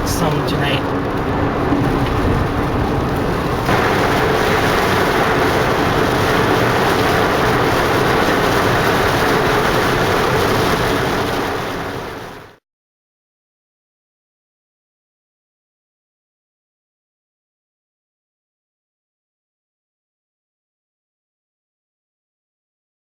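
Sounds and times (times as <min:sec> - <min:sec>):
tyres and wind road noise: 0:00.0 - 0:12.6.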